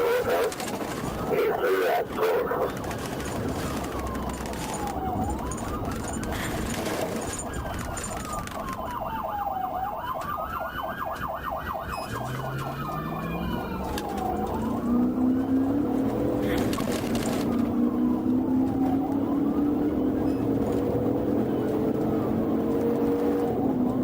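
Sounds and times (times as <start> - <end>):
rapid siren warble: 0.0 - 2.8, 3.4 - 20.6
police siren wailing: 0.0 - 24.0
vehicle engine accelerating: 11.9 - 24.0.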